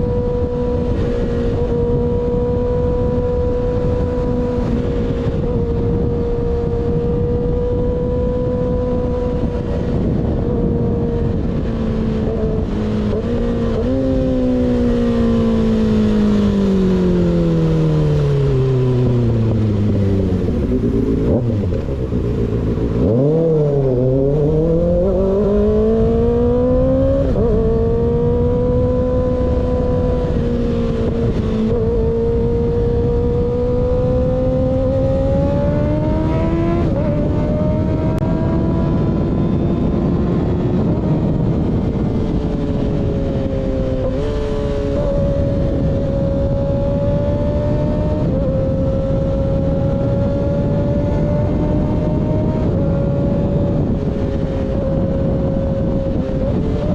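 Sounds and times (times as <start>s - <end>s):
motorcycle engine: 0.0s - 56.9s
wind rush on microphone: 0.0s - 56.9s.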